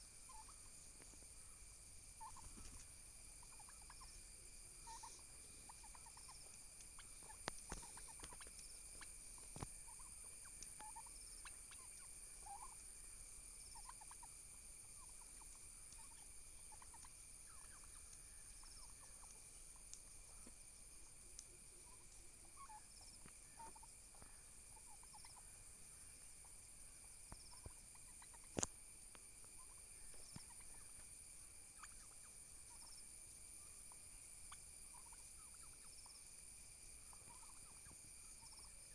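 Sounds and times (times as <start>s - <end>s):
turkeys calling: 0.0s - 28.8s, 29.4s - 36.3s, 36.9s - 38.9s.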